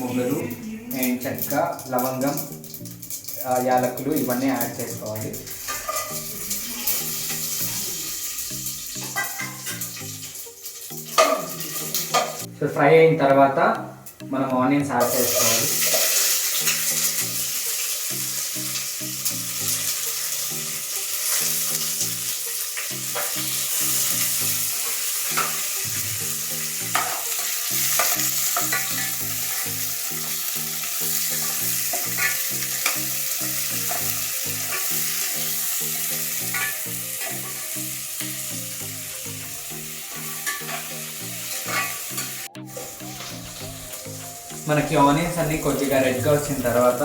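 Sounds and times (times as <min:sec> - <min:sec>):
onions sizzling in oil: 0:00.0 - 0:12.5, 0:15.0 - 0:47.0
spoon stirring in pan: 0:05.4 - 0:07.6, 0:31.2 - 0:35.8, 0:36.4 - 0:37.8, 0:40.3 - 0:44.6.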